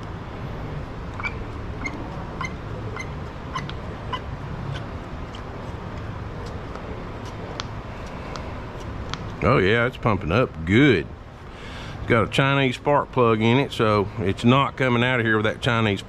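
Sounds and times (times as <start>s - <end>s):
primer bulb squeaky clicks: 1.2s - 4.8s.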